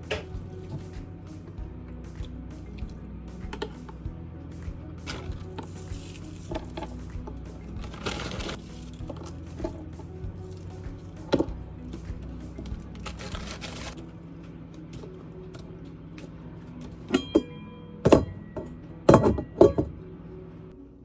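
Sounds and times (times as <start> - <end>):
background music: 0.0 - 21.0
kitchenware clinking and knocking: 17.1 - 20.0.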